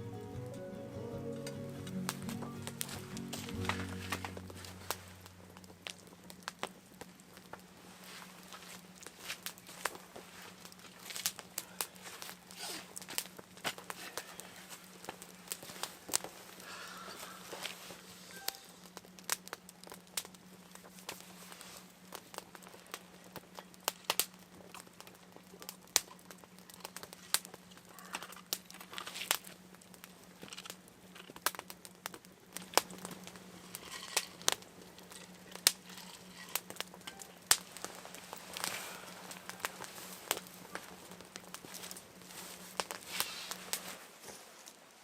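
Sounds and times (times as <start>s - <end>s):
faint low hum: 0.0s - 43.1s
crackling with clicks and pops: 1.3s - 45.0s.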